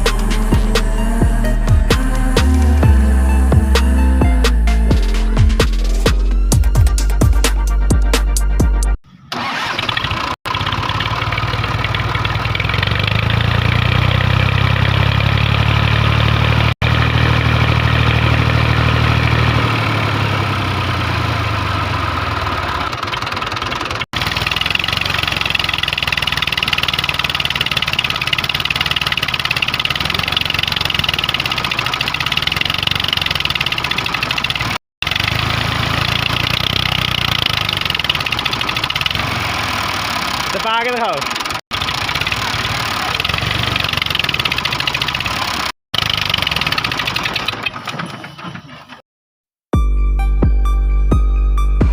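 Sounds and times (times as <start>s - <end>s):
small tractor engine droning: 9.1s - 49.0s.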